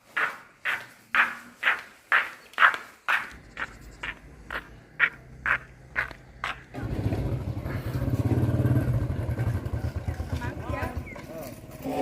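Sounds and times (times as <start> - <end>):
motorbike engine running: 6.0 - 12.0.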